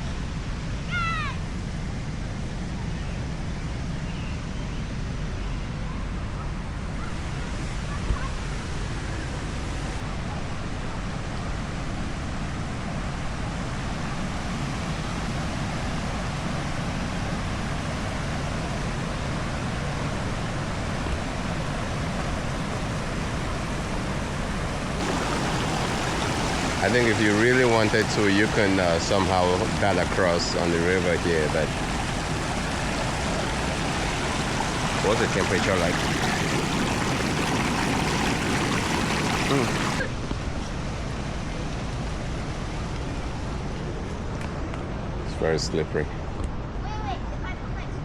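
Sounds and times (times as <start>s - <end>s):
waterfall rushing over rock: 25.0s - 40.0s.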